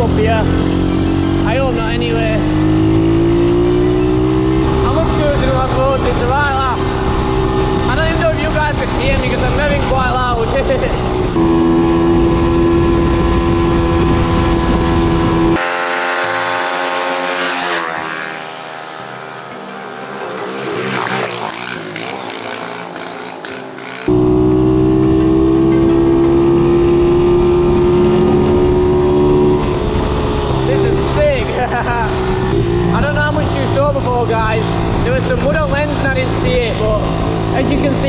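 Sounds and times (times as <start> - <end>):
motorbike engine running: 0.0 - 24.5.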